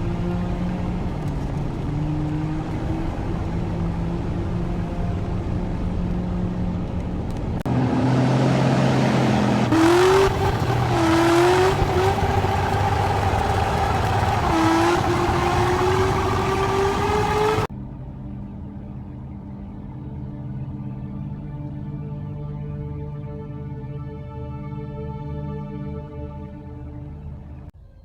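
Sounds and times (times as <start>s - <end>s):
car engine accelerating: 0.0s - 17.7s.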